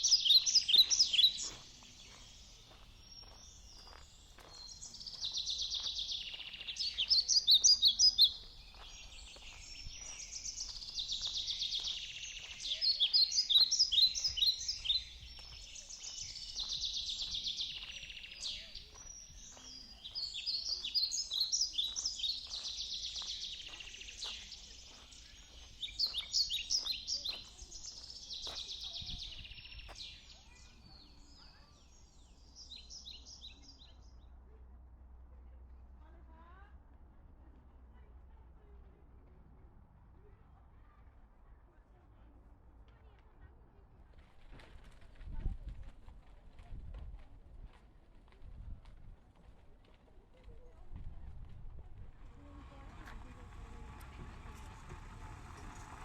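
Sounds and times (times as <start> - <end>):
footsteps on a path: 0.0 - 33.8, 44.1 - 56.0
songbird singing: 0.0 - 34.4, 50.3 - 56.0.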